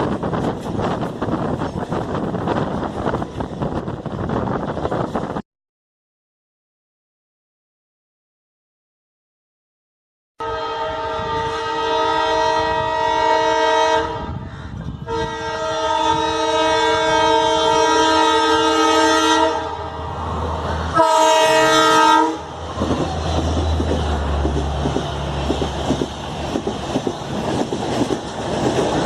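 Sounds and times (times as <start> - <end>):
low train rumble: 0.0 - 5.4, 10.4 - 29.0
locomotive air horn chord: 10.4 - 14.4, 15.0 - 20.2, 20.9 - 22.5.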